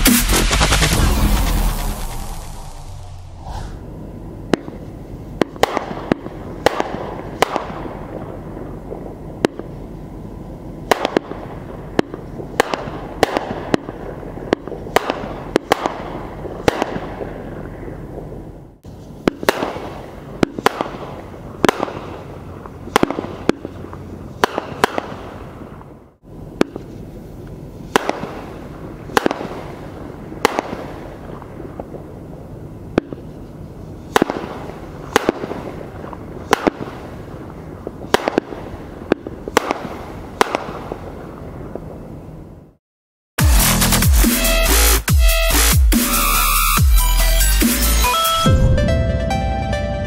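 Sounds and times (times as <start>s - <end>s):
fireworks cracking: 0.0s - 3.9s, 5.4s - 9.8s, 10.8s - 18.3s, 19.2s - 25.9s, 26.6s - 32.2s, 34.0s - 42.0s
fireworks crackling hiss: 0.0s - 4.0s.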